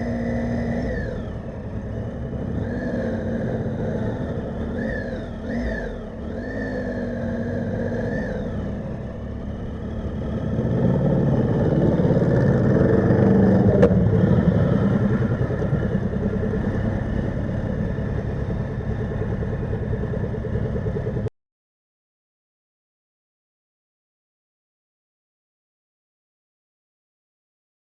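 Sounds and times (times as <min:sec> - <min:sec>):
motorcycle engine running: 0:00.0 - 0:21.3.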